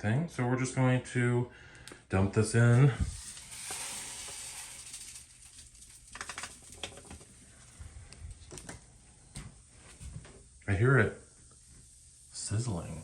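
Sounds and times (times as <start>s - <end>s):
cleaner crackling and popping: 2.6s - 13.0s
pouring hiss: 2.6s - 13.0s.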